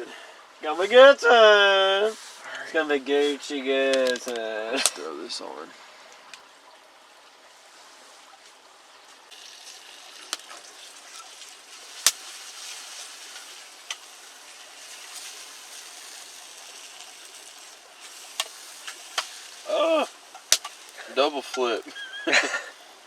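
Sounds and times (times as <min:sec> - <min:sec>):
sausages sizzling in a pan: 0:09.3 - 0:23.0
sharp fat pops: 0:12.0 - 0:12.5, 0:18.0 - 0:21.0.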